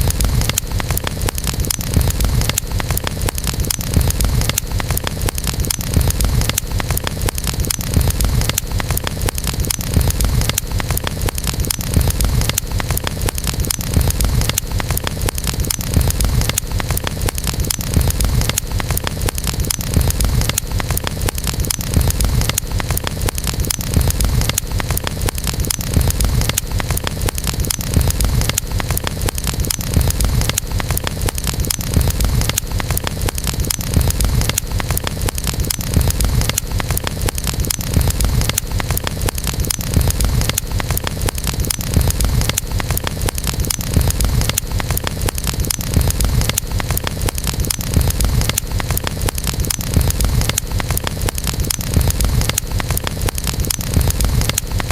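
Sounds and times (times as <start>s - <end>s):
campfire crackling and popping: 0.0s - 54.9s
low fire rumble: 0.0s - 54.9s.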